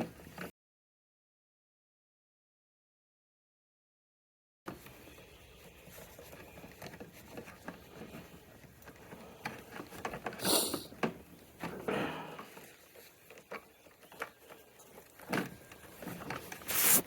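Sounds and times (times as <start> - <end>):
hands handling scooter parts: 4.7 - 17.0
brief scrape: 16.6 - 17.0.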